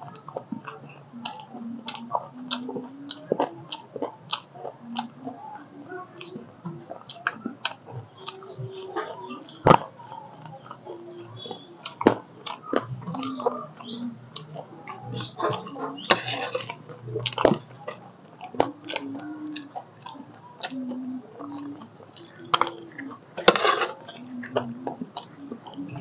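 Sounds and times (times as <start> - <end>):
crunching and chewing snack: 0.0 - 5.4, 6.2 - 26.0
spoon scraping plate: 23.4 - 24.0.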